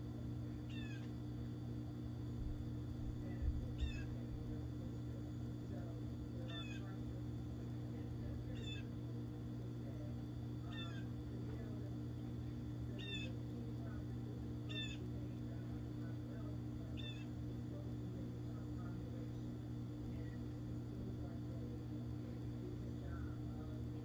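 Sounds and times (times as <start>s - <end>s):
steady low hum: 0.0s - 24.0s
bird mewing call: 0.7s - 1.1s, 3.8s - 4.1s, 10.7s - 11.1s, 13.0s - 13.3s, 14.7s - 15.0s, 17.0s - 17.3s.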